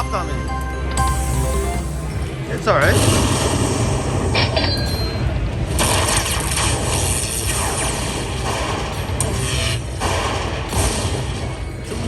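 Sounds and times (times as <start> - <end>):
slot machine beeps: 0.0 - 6.7.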